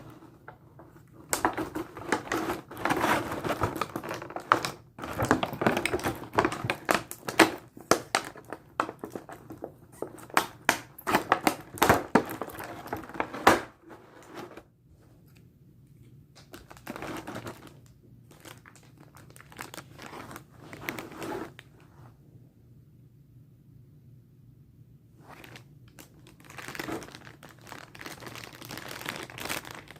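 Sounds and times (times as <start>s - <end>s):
rustling: 0.0s - 10.3s, 16.0s - 22.2s
plastic packaging crinkling: 0.0s - 14.6s, 16.4s - 21.7s, 25.2s - 29.9s.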